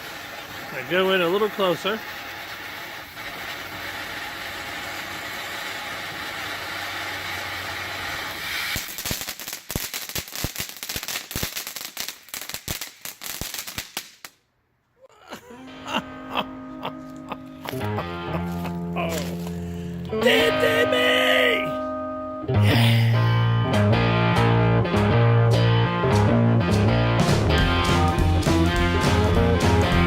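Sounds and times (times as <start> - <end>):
firework crackling pops: 0.0 - 14.4
firework sparks hissing: 0.0 - 14.4
music: 15.7 - 30.0.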